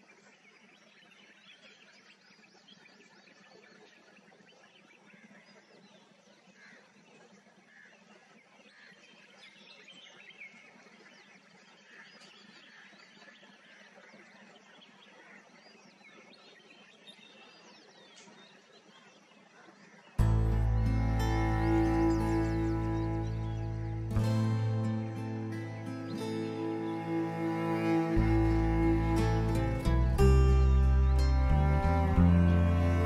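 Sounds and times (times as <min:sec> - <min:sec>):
birds chirping: 0:00.0 - 0:33.0
faint low hum: 0:20.2 - 0:33.0.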